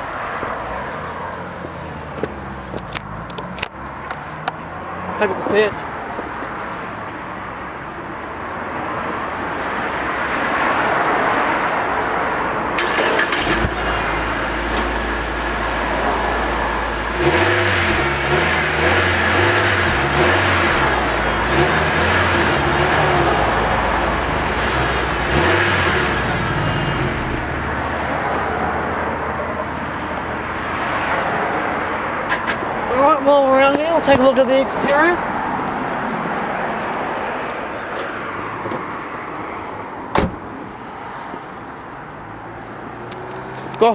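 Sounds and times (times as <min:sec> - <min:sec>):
car engine idling and revving: 0:00.0 - 0:07.8, 0:12.8 - 0:33.0, 0:40.2 - 0:43.9.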